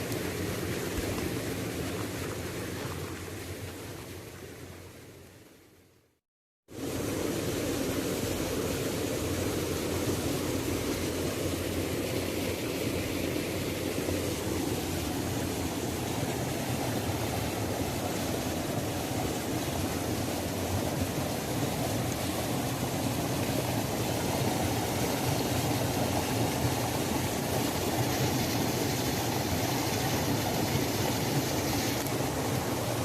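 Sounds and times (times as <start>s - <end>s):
waterfall rushing: 12.9s - 33.0s.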